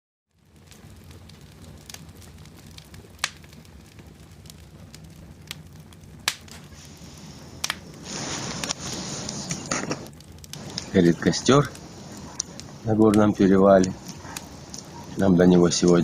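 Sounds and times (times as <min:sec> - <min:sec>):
burning wood popping: 0:00.3 - 0:16.0
campfire crackling: 0:00.3 - 0:16.0
flames hissing: 0:00.3 - 0:16.0
low steady rumble: 0:04.0 - 0:16.0.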